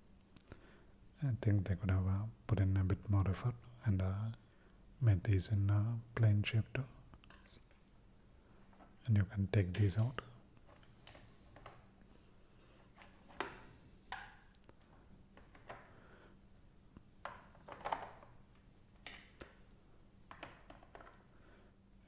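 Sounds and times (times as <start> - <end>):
plastic pieces clicking: 17.2 - 18.4.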